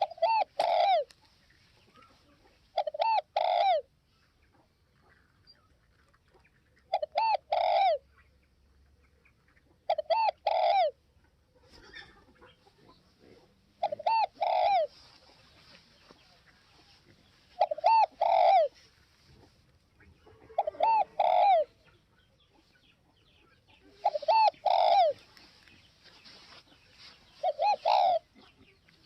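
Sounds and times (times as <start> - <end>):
dove cooing: 0.0 - 1.1, 1.8 - 4.0, 6.8 - 8.1, 9.8 - 11.0, 13.2 - 22.0, 23.4 - 26.4, 27.0 - 28.8.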